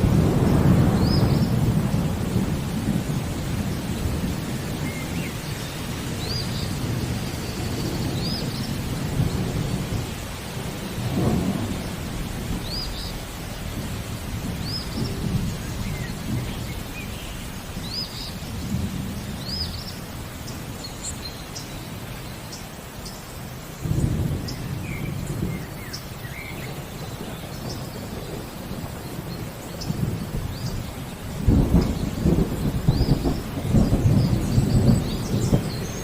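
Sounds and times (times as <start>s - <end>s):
thunder rumbling: 0.0s - 20.8s, 23.8s - 36.0s
steady rain falling: 0.0s - 36.0s.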